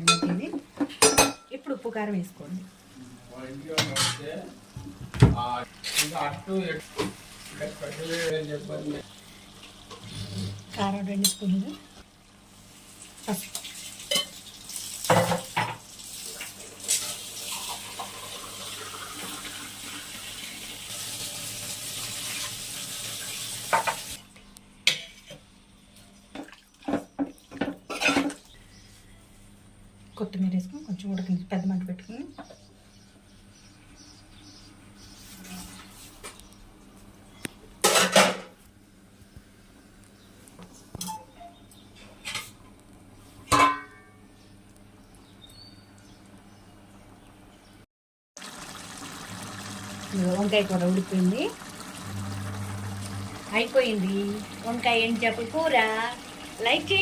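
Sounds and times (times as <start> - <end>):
kitchen utensils clinking: 0.0 - 1.6, 3.8 - 4.3, 26.9 - 28.4
water running: 1.7 - 24.2, 48.4 - 57.0.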